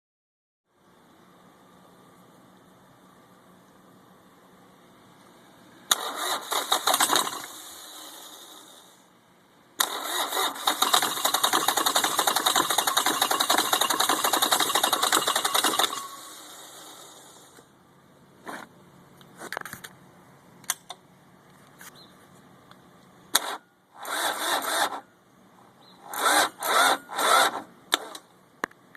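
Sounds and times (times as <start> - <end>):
diesel engine cranking: 5.9 - 9.0, 9.8 - 17.6, 23.3 - 25.1, 26.0 - 28.3.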